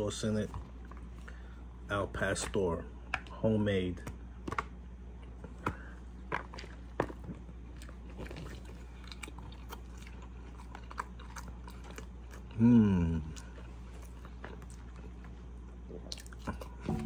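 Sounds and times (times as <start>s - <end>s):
steady low hum: 0.0s - 17.0s
person biting and chewing taco: 4.3s - 17.0s.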